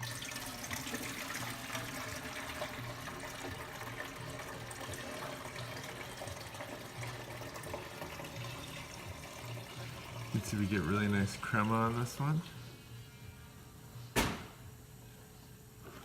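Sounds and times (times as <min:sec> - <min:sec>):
espresso pouring into a cup: 0:00.0 - 0:12.5.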